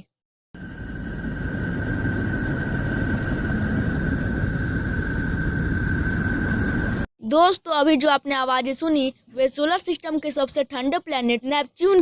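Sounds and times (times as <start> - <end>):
deep rumbling noise: 0.6 - 7.1.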